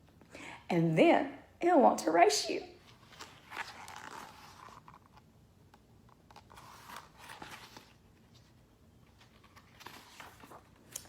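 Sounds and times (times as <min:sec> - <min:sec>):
book page rustling and turning: 0:02.8 - 0:11.0.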